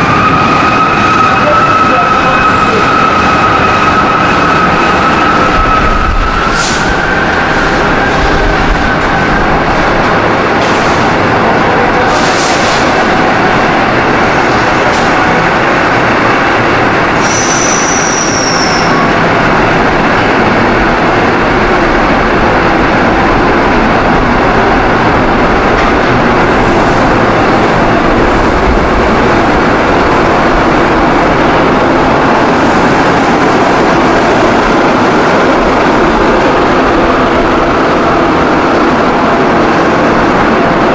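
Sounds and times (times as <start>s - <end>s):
diesel train idling: 0.0s - 17.9s.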